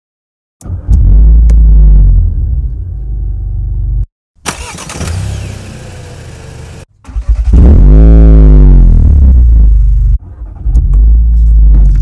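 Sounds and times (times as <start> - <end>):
car engine starting and revving: 4.5 - 12.0.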